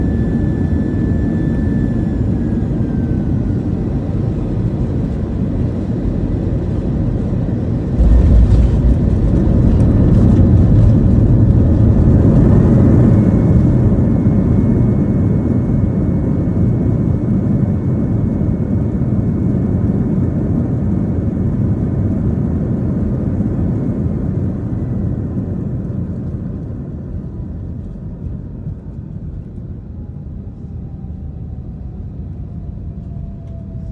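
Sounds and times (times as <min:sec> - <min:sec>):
jet engines whining for reverse thrust: 0:00.0 - 0:22.2, 0:29.3 - 0:33.9
jet engine and air noise in cabin: 0:00.0 - 0:33.9
heavy rumble of wheels touching down: 0:08.0 - 0:13.8.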